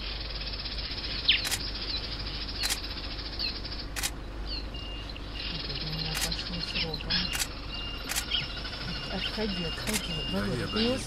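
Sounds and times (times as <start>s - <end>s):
birds chirping: 0.0s - 11.0s
low hum: 0.0s - 11.0s
sharp clicks: 1.3s - 1.7s, 2.6s - 2.9s, 4.0s - 4.2s, 6.1s - 6.5s, 7.2s - 8.4s.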